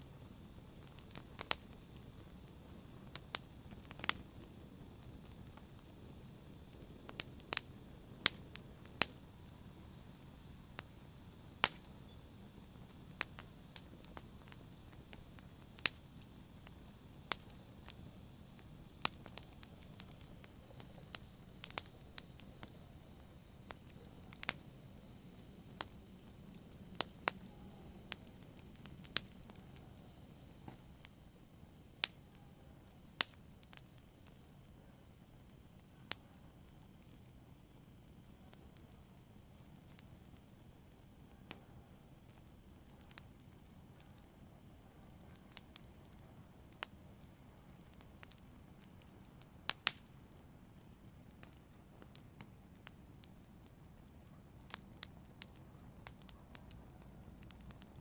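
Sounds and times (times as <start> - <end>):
faint low hiss: 0.0 - 58.0
fireplace fire crackling: 0.0 - 58.0.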